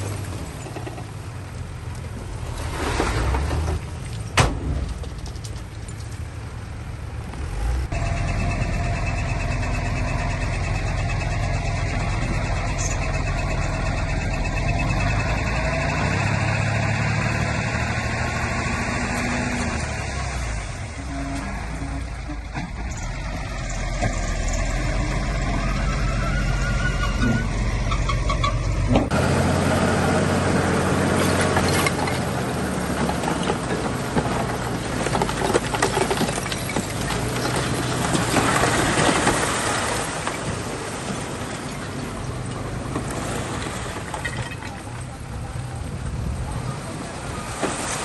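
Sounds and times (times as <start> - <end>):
bulldozer diesel engine: 0.0 - 48.0
crunching clicks of stone and dirt: 1.9 - 6.4, 31.1 - 40.6.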